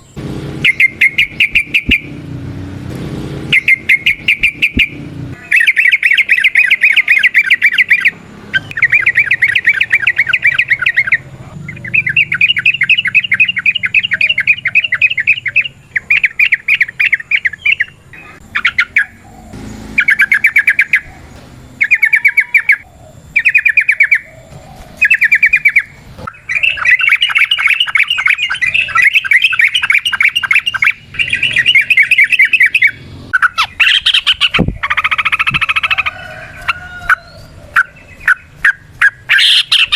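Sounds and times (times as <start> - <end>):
bird chattering song: 0.0 - 2.2, 3.5 - 39.9.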